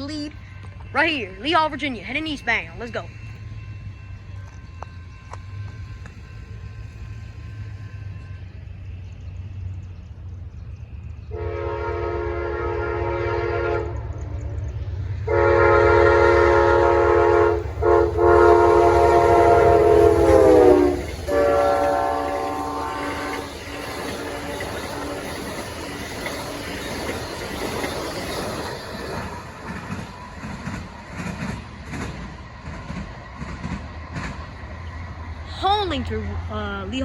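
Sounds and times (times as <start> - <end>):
train rumbling: 0.0 - 37.0
locomotive horn blasts: 11.3 - 14.0, 15.3 - 25.4.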